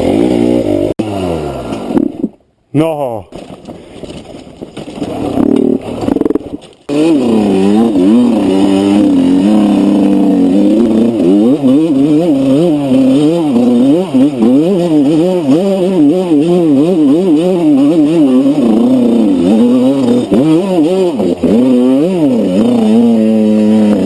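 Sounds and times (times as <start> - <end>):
motorcycle engine revving: 0.0 - 2.4, 5.0 - 24.0.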